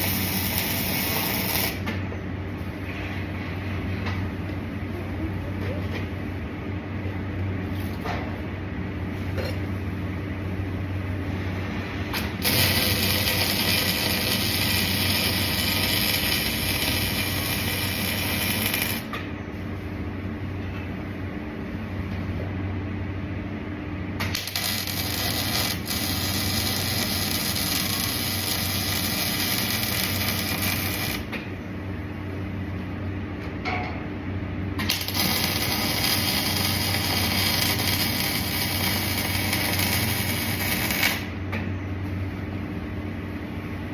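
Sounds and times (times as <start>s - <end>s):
welding arc crackling and hissing: 0.0s - 1.9s, 12.1s - 19.2s, 24.2s - 31.4s, 34.8s - 41.4s
steady low hum: 0.0s - 43.9s.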